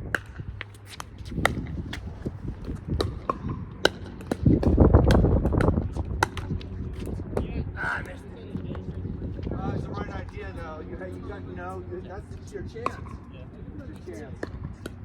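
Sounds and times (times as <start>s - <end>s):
wind buffeting microphone: 0.0s - 15.0s
ball bouncing: 0.1s - 9.0s, 12.6s - 15.0s
paddles hitting plastic ball: 0.2s - 7.2s
footsteps on court: 0.5s - 3.5s.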